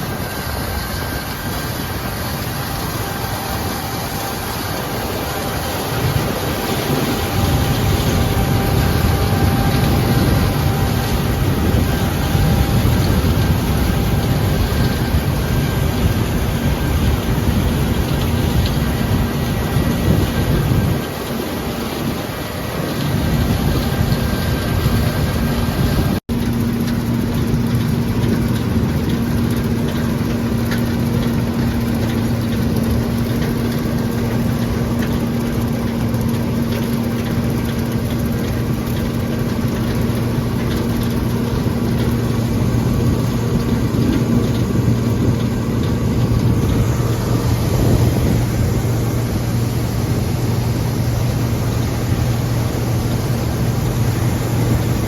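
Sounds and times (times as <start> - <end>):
combine engine running: 0.0 - 55.0.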